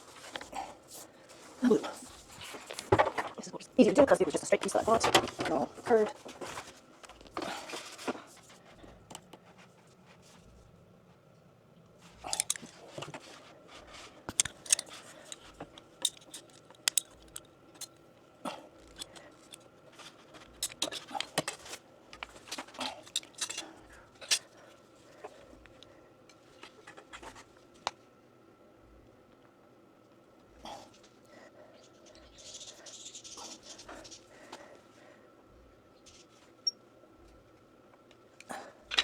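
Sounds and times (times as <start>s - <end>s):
tools clicking and scraping: 12.1s - 18.0s, 18.8s - 24.6s
plastic pipe being handled: 12.2s - 18.0s.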